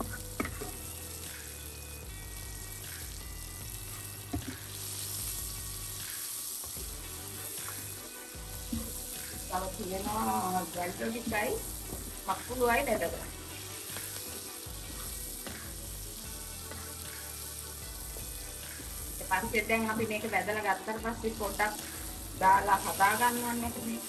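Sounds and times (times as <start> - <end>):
prawns sizzling in oil: 0.0 - 24.0
person speaking: 9.5 - 11.6.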